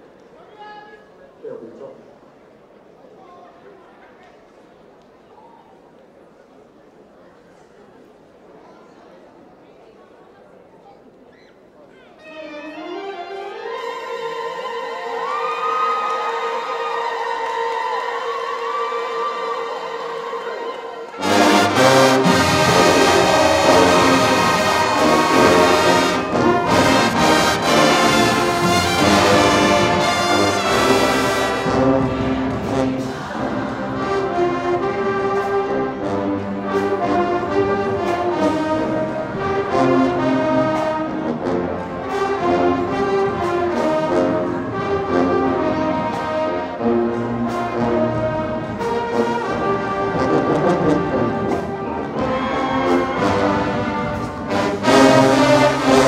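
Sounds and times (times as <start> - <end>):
marching band playing brass: 16.0 - 56.0
drum strokes: 21.2 - 34.1.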